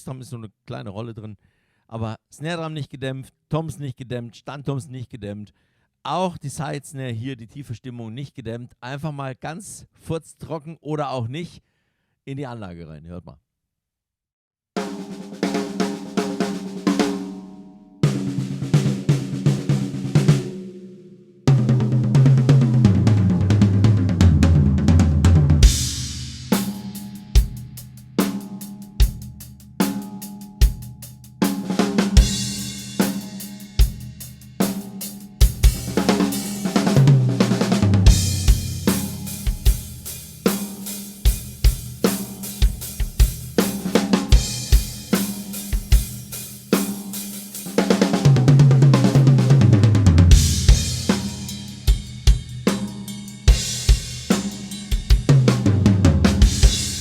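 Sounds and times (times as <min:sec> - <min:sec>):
drum kit beat: 0:14.8 - 0:57.0
cymbal crashes: 0:25.6 - 0:27.7, 0:38.0 - 0:42.9, 0:50.4 - 0:52.2, 0:56.4 - 0:57.0.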